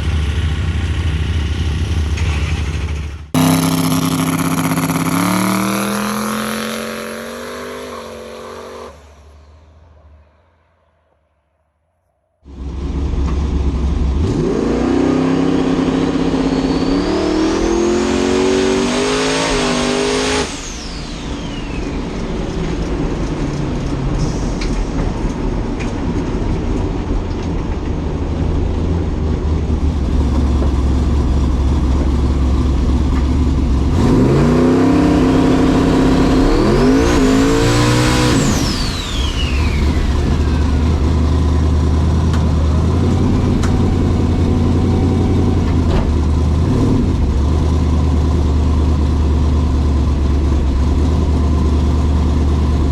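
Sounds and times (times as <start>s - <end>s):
drag race cars accelerating: 0.0s - 10.2s, 12.5s - 52.9s
high rising whine: 3.4s - 11.3s, 12.4s - 47.4s.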